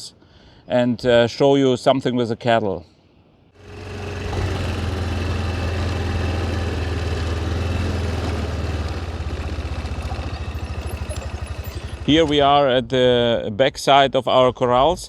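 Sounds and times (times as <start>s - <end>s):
vehicle engine idling: 3.6s - 12.9s.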